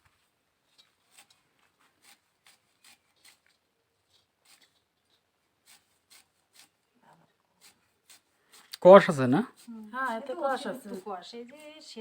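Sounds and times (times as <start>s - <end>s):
blade slicing banana flower: 5.6s - 6.8s.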